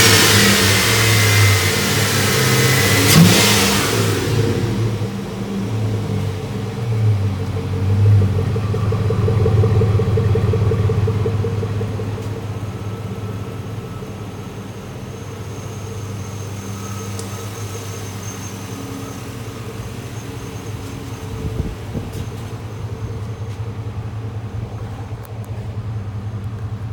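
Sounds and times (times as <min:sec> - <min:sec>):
truck engine revving and idling: 0:00.0 - 0:26.9.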